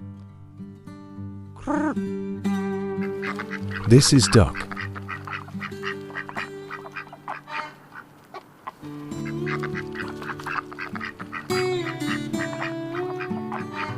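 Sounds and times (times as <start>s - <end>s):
music of held chords: 0.0s - 7.6s, 8.8s - 13.9s
ducks quacking: 3.0s - 13.9s.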